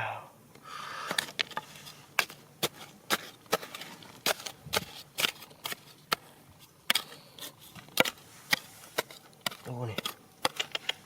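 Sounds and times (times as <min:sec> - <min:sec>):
hand tool striking rock: 0:02.2 - 0:06.3, 0:06.9 - 0:11.0.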